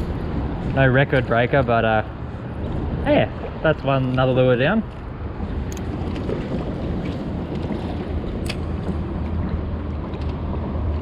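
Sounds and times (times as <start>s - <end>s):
boat motor humming: 5.1s - 10.7s.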